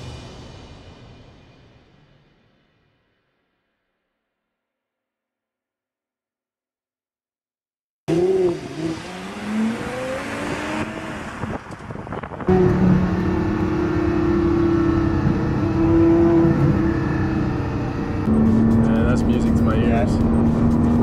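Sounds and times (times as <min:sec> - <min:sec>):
sports car engine revving: 0:08.1 - 0:21.0.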